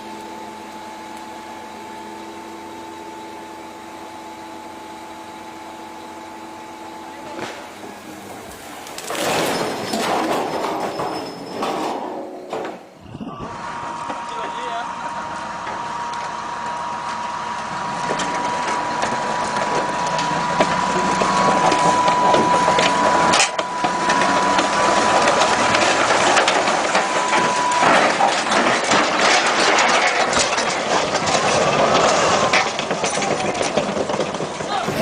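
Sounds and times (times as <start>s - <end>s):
heavy machinery crunching: 7.1s - 35.0s.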